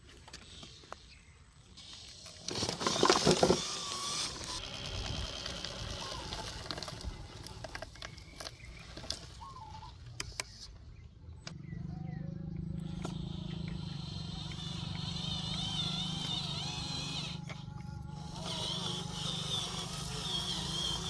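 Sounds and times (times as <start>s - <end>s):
small electric motor whirring: 1.7s - 9.5s, 12.4s - 21.0s.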